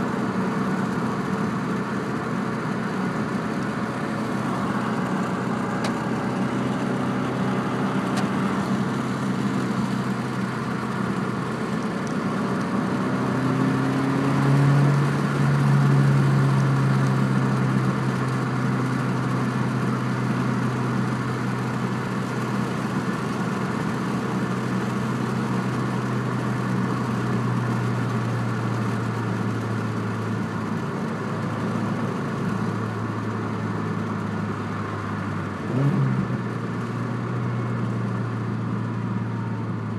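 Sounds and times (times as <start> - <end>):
car engine exhaust note: 0.0 - 19.1.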